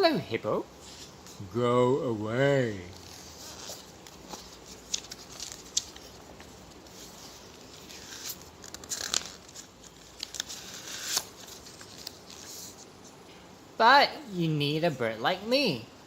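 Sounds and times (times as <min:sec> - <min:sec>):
book pages rustling: 0:02.8 - 0:13.2.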